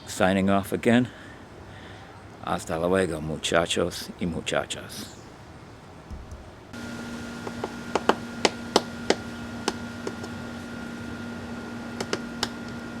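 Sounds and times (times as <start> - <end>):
electrical hum: 5.8 - 13.0
sharp clicks and taps: 12.0 - 12.6.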